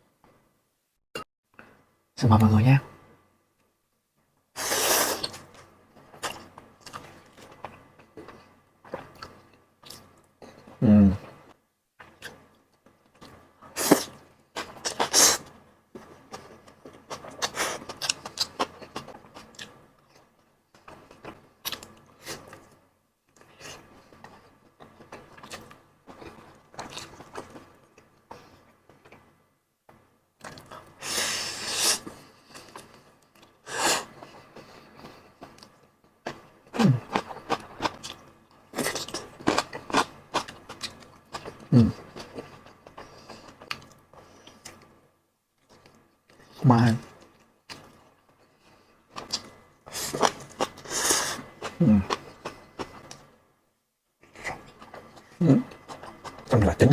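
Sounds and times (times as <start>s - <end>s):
person humming: 51.8s - 52.1s.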